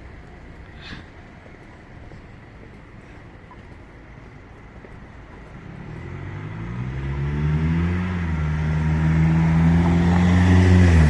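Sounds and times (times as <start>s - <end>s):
vehicle engine passing by: 5.5s - 11.0s.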